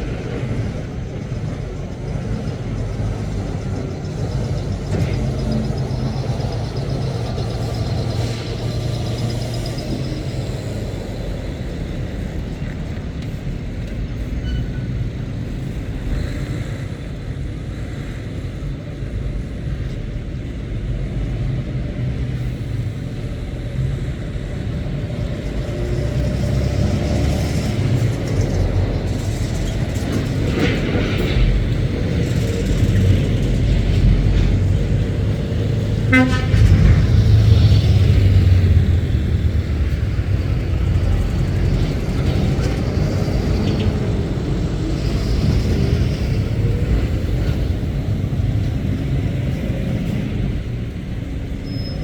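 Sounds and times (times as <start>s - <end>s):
lorry engines rumbling: 0.0s - 52.0s.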